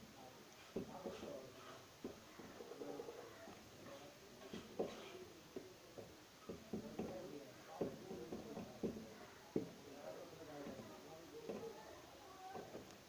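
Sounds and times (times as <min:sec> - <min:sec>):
light taps and scratching: 0:00.6 - 0:09.8.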